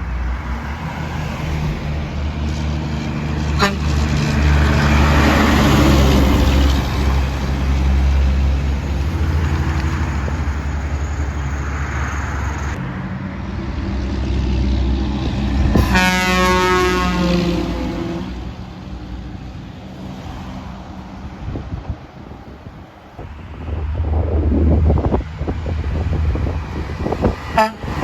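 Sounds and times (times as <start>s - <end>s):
heavy trucks passing: 0.0s - 28.0s
truck air horn chord: 3.6s - 4.0s, 15.8s - 18.4s, 27.5s - 28.0s.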